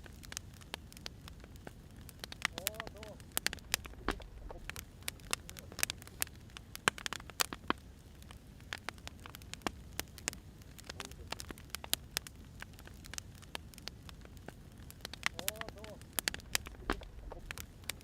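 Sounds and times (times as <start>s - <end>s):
firewood crackling and popping: 0.0s - 18.0s
low steady rumble: 1.8s - 6.8s, 16.0s - 18.0s.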